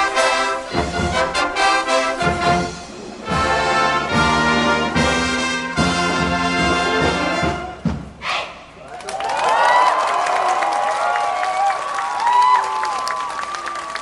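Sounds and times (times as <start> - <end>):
brass section playing: 0.0 - 7.9
drum hits: 2.2 - 8.2.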